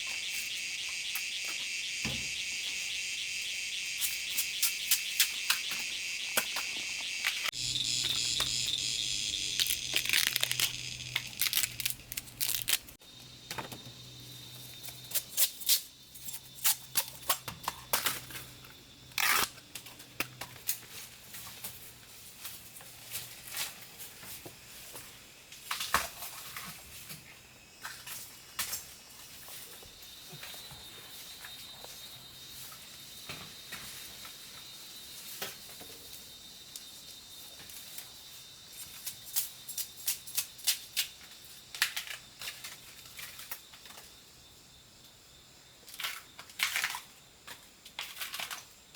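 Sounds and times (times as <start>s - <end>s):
insect trill: 0.0s - 20.0s, 20.7s - 48.9s
plant material cracking and tearing: 9.3s - 13.0s.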